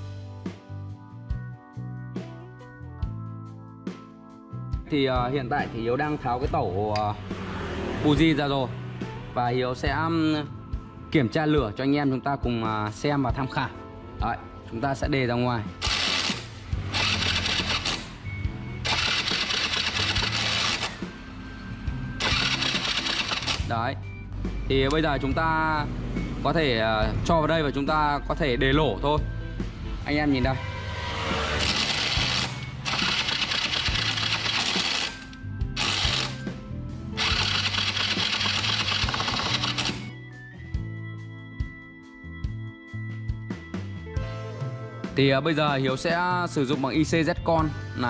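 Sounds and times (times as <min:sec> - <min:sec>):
motorbike starter cranking engine: 0:15.8 - 0:18.2, 0:18.8 - 0:21.1, 0:22.2 - 0:23.8, 0:31.5 - 0:36.5, 0:37.2 - 0:40.2.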